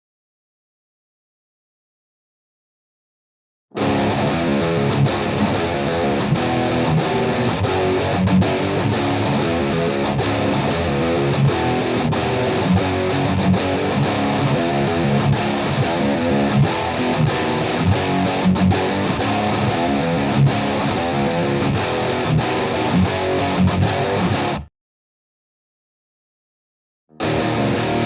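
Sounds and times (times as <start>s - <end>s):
distorted electric guitar riff: 3.8s - 24.7s, 27.1s - 28.0s.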